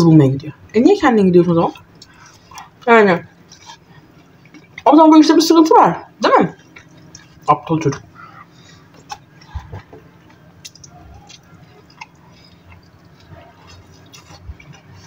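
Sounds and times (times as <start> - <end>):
chewing crispy burger: 1.5 - 5.4, 6.0 - 15.0
wet mouth clicks and smacks: 1.8 - 2.7, 6.6 - 7.5, 8.9 - 15.0.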